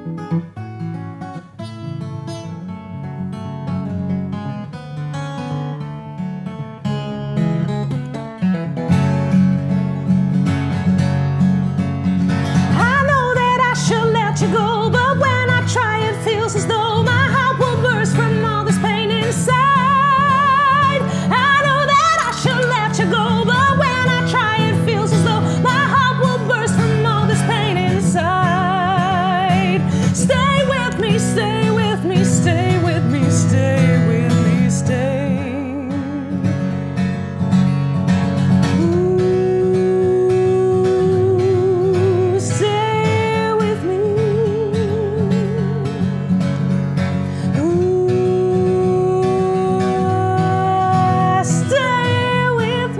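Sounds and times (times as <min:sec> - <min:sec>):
strummed acoustic guitar: 0:00.0 - 0:52.9
woman singing with vibrato: 0:12.6 - 0:36.7, 0:38.6 - 0:46.3, 0:47.4 - 0:52.9.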